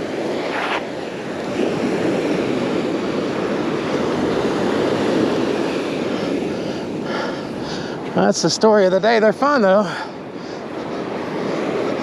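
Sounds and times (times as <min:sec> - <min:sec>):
wind on microphone: 0:00.0 - 0:08.2
surf washing onto beach: 0:00.0 - 0:12.0.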